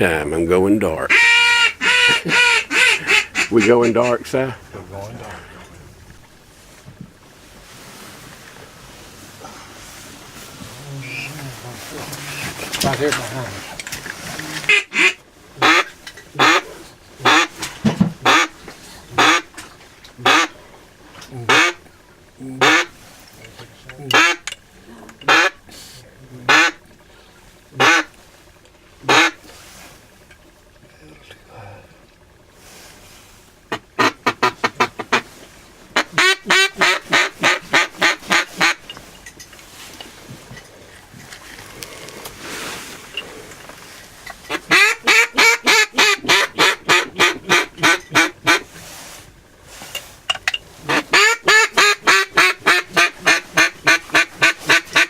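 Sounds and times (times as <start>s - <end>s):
duck quacking: 1.1s - 4.5s, 11.0s - 11.4s, 14.4s - 19.6s, 20.2s - 20.7s, 21.3s - 21.9s, 22.5s - 23.1s, 24.0s - 24.5s, 25.2s - 25.6s, 26.4s - 26.8s, 27.8s - 28.1s, 29.0s - 29.4s, 33.7s - 35.4s, 36.0s - 38.9s, 44.5s - 48.7s, 50.8s - 55.0s.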